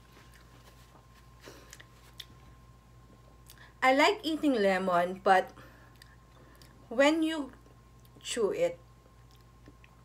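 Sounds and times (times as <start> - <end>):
electrical hum: 0.0 - 10.0
person chewing: 1.6 - 2.4.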